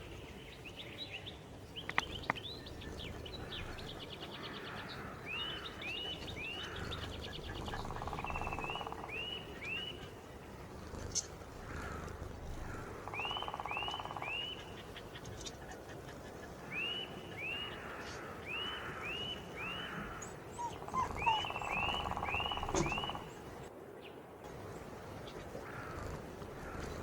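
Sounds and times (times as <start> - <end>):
bird whistling song: 20.6 - 23.3.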